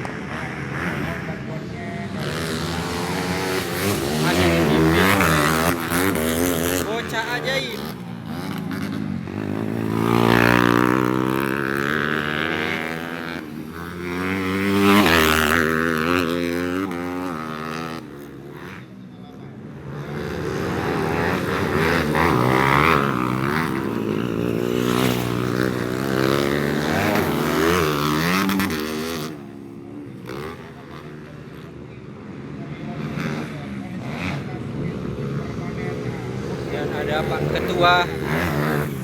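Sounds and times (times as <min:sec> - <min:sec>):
motorcycle engines revving: 0:00.0 - 0:39.0
motorcycles passing close: 0:00.0 - 0:39.0.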